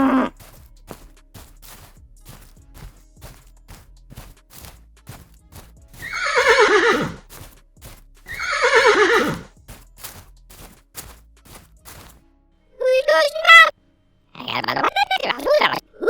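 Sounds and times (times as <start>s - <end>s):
hooves clip-clopping: 0.0s - 12.2s
horse whinnying: 6.0s - 7.2s, 8.3s - 9.5s.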